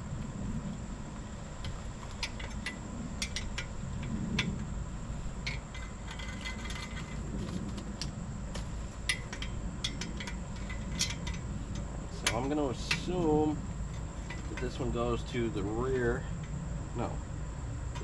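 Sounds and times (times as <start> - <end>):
steady low hum: 0.0 - 18.0
metal tools clinking: 2.1 - 4.6, 5.4 - 7.7, 8.9 - 15.3.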